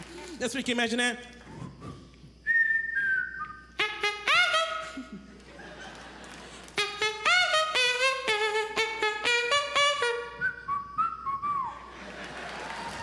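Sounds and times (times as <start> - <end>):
man whistling a melody: 1.5 - 5.0, 6.8 - 11.9.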